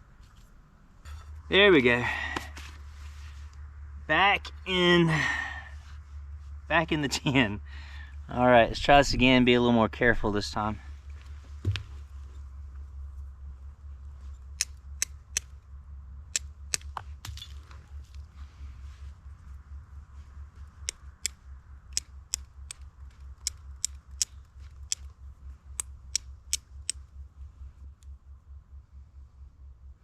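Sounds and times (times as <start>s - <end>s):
flint and steel striking clicks: 14.3s - 15.6s, 16.3s - 17.5s, 20.8s - 27.1s.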